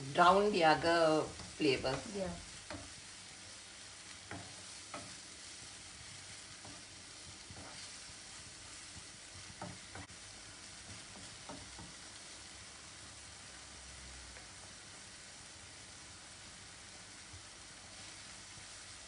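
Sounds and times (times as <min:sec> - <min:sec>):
masala sizzling in hot oil: 0:00.0 - 0:19.0
spoon scraping and knocking pan: 0:01.3 - 0:10.2, 0:10.8 - 0:12.1.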